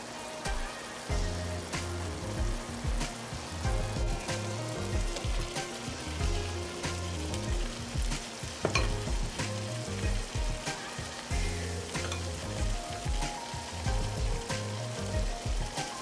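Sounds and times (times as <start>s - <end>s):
meat sizzling in a pan: 0.0s - 16.0s
background music with bass pulse: 1.1s - 10.7s, 11.3s - 15.8s
vegetables added to pan: 4.2s - 10.0s, 10.6s - 12.7s.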